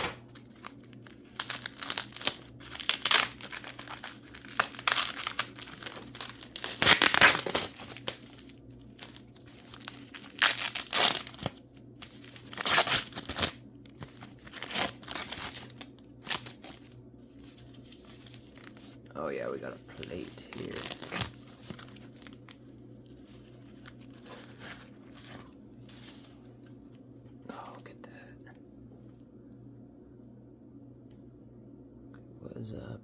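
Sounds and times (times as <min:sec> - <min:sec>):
packing wrap crinkling and tearing: 0:00.3 - 0:26.3.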